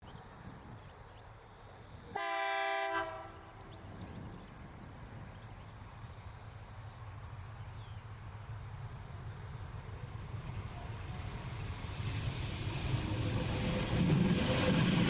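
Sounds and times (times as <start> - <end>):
locomotive horn blast: 2.2 - 3.6.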